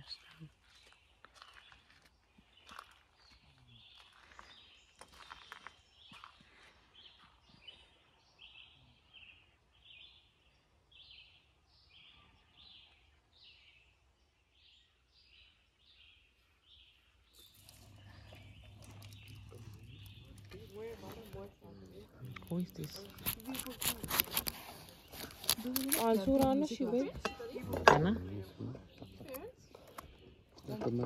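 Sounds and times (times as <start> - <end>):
campfire hissing and crackling: 17.4 - 26.2.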